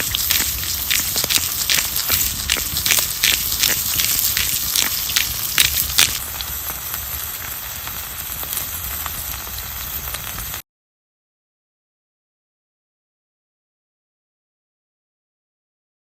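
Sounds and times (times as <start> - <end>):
wood fire crackling and popping: 0.0 - 10.6.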